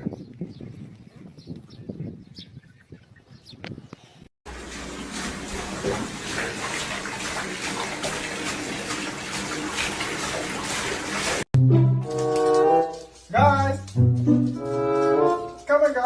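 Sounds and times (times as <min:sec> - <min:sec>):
running water rushing: 0:04.5 - 0:11.5.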